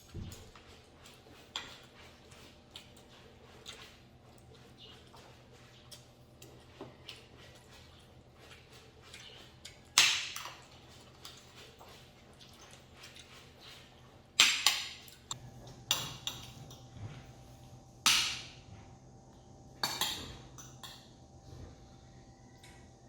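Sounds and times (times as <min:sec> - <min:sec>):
low steady hum: 0:15.0 - 0:23.0.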